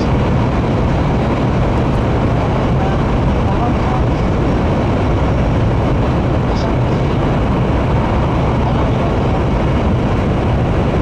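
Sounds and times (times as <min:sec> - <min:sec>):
train cabin rushing and rumble: 0:00.0 - 0:11.0.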